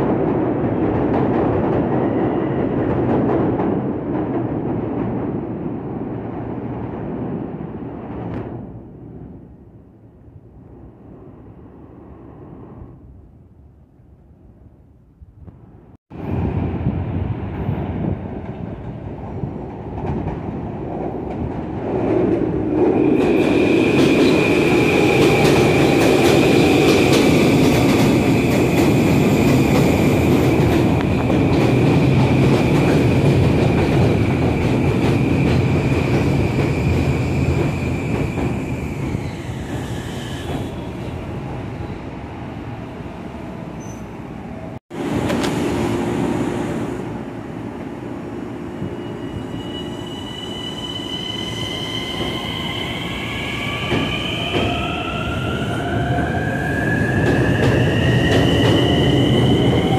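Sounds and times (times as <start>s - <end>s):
train wheels rumbling on rails: 0.0s - 9.1s, 16.1s - 42.3s, 48.7s - 59.9s.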